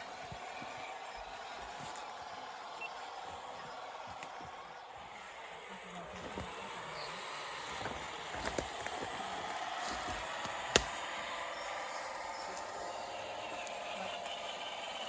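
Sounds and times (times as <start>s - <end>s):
electric motor and gearbox whining: 6.0s - 15.0s.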